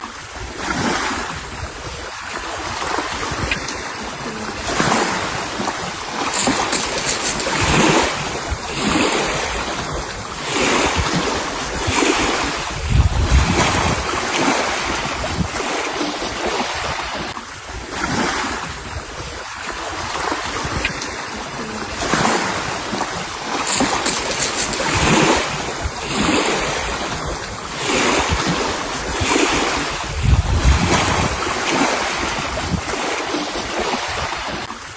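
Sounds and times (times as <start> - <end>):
sea waves washing: 0.0 - 34.9
wind gusting on microphone: 0.0 - 34.9.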